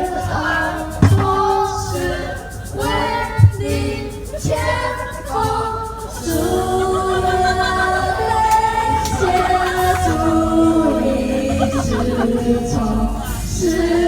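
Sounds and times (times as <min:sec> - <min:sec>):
group of people singing in unison: 0:00.0 - 0:14.0
sharp thump: 0:01.0 - 0:01.8.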